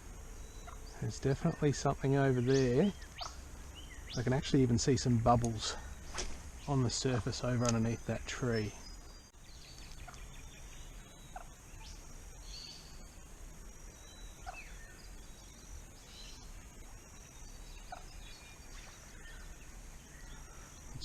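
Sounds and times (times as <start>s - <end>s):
short bird calls: 17.5s - 21.0s.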